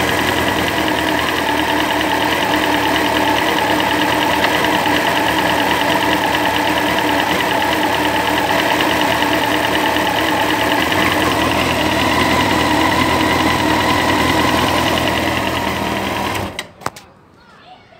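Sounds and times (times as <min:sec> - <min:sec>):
rapid regular ticking: 0:00.0 - 0:16.5
motorcycle engine running: 0:00.0 - 0:16.6.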